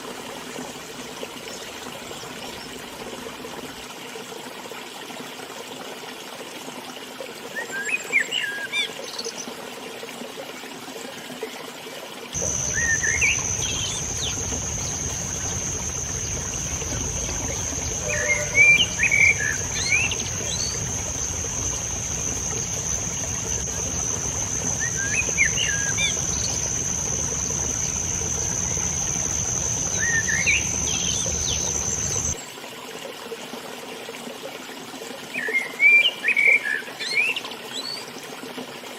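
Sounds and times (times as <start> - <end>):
river running: 0.0 - 38.7
high-pitched whine: 12.4 - 32.4
songbirds chirping: 12.4 - 32.4.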